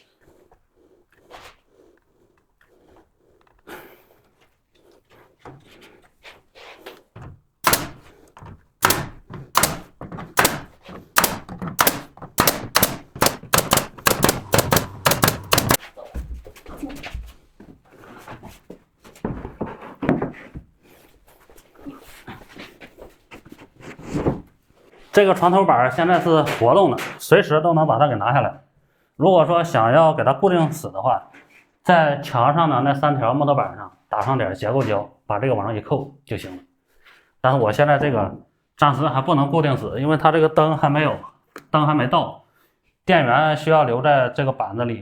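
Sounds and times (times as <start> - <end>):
wooden knocks and thuds: 7.2 - 16.6.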